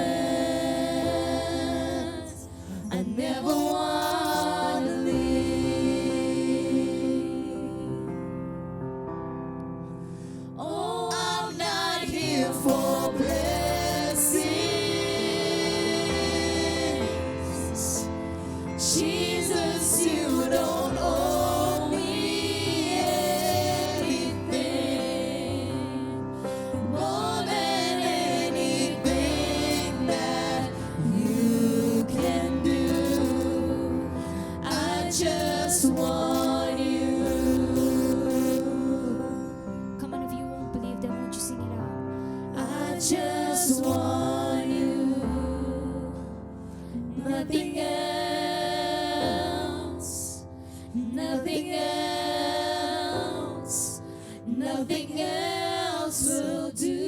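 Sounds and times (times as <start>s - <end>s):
voices singing worship song: 0.0s - 8.5s, 10.2s - 57.0s
sustained accompaniment chords: 12.4s - 39.6s
person singing long held notes: 26.8s - 39.6s.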